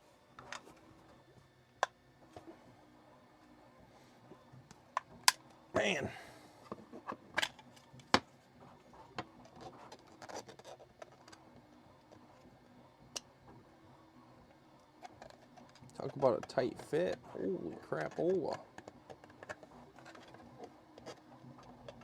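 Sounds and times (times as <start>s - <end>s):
plastic scraping and rubbing: 8.7s - 11.4s, 14.9s - 22.0s.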